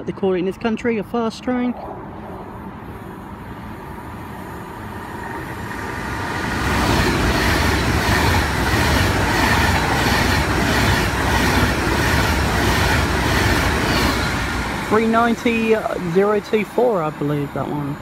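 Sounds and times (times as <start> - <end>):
train rushing past: 1.7 - 18.0
train wheels clickety-clack: 6.2 - 17.8.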